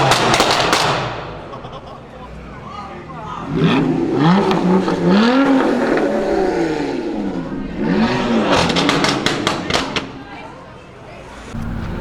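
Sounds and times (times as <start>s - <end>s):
exhaust pops and crackles: 0.0s - 1.2s, 8.0s - 10.4s
car engine revving: 3.3s - 12.0s.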